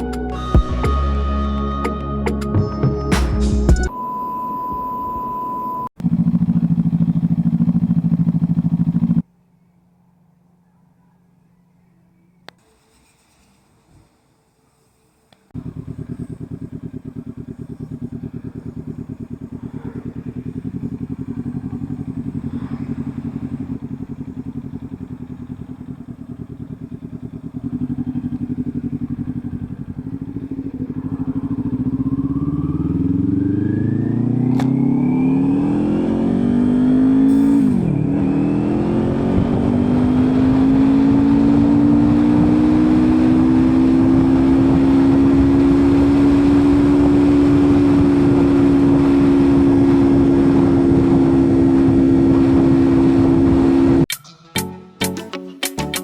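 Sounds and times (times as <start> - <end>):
motorcycle engine idling and revving: 6.0 - 9.3, 15.3 - 54.1.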